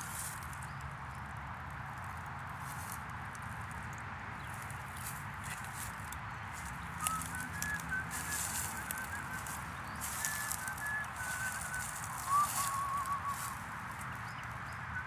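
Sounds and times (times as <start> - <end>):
bird chirping: 4.4 - 15.0.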